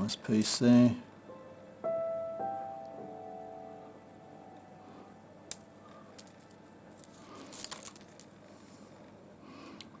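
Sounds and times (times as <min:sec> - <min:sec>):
piano background music: 0:00.0 - 0:08.0
small hard objects clicking: 0:05.5 - 0:08.4.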